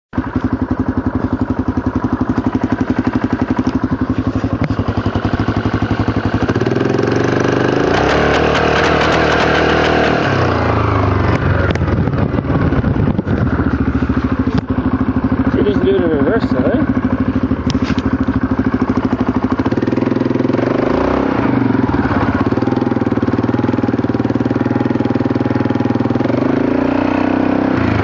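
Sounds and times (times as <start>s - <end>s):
atv engine idling and revving: 0.1s - 28.0s.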